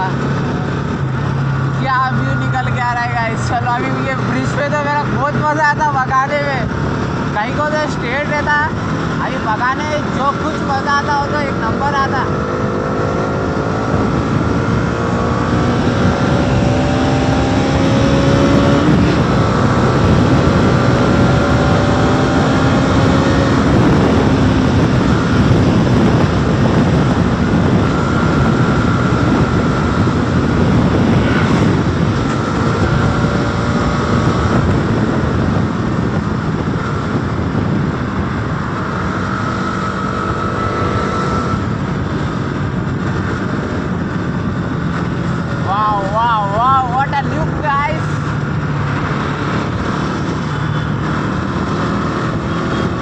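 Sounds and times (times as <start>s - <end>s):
motorcycle engine accelerating: 0.0s - 53.0s
wind rushing on microphone: 0.0s - 53.0s.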